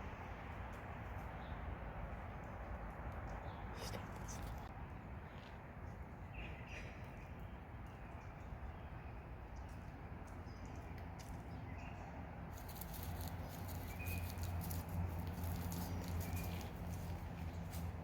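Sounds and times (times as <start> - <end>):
light pattering steps: 12.6 - 18.0.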